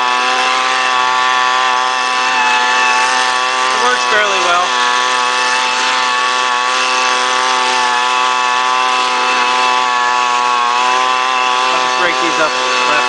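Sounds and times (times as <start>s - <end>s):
leaf blower engine running: 0.0s - 13.0s.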